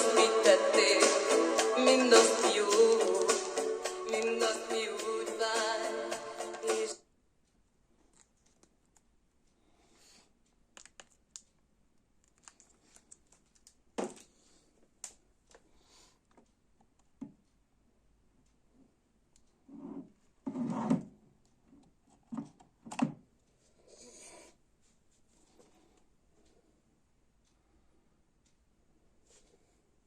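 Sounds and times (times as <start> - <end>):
small clicks: 10.6 - 13.8.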